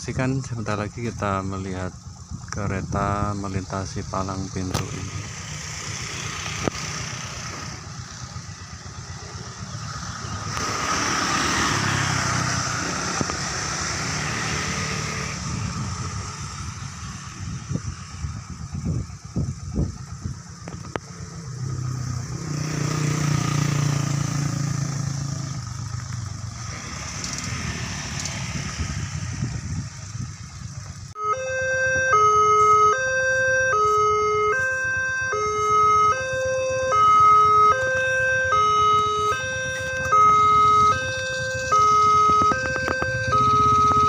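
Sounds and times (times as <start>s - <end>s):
road traffic passing: 0.0s - 44.0s
two-tone crossing alarm: 31.2s - 44.0s.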